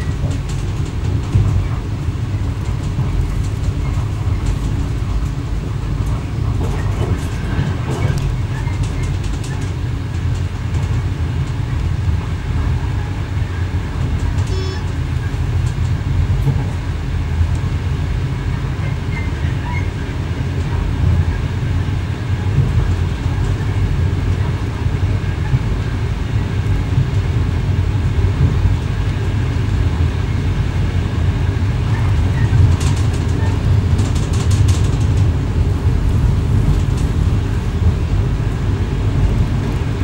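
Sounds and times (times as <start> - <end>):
train wheels rumbling on track: 0.0 - 40.0
faint high tone: 14.5 - 14.9.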